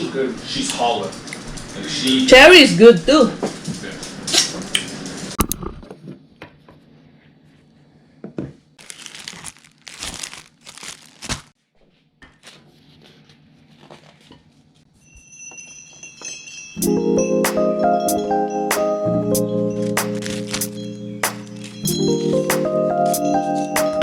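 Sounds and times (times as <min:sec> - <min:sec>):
packaging crinkling: 0:08.8 - 0:11.6, 0:20.0 - 0:20.8.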